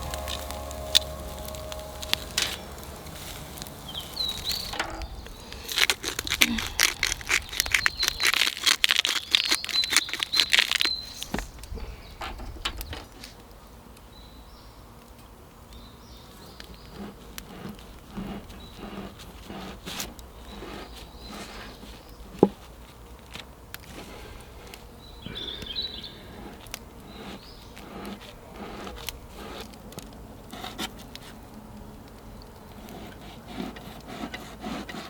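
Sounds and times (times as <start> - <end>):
small birds chirping: 0.0 - 13.0, 24.7 - 27.9.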